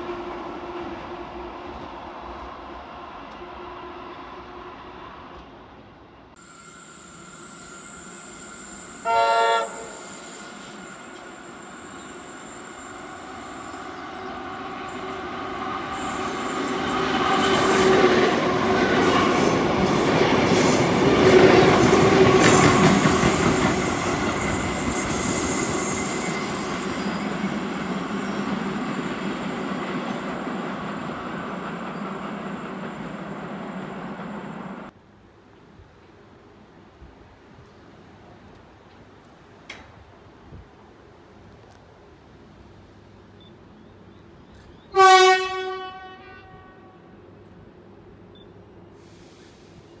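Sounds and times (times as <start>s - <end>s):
train rumble: 7.2s - 35.0s.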